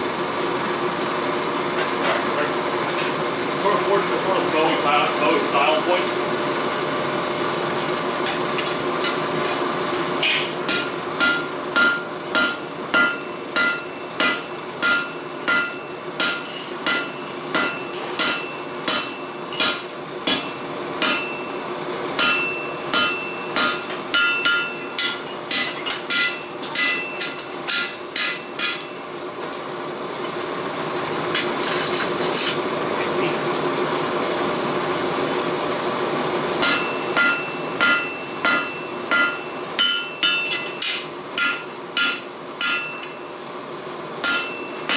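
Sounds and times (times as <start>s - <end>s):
hammer striking steel on anvil: 10.2s - 21.5s, 22.2s - 29.0s, 36.6s - 43.2s, 44.2s - 44.9s
steady hum: 22.2s - 29.0s.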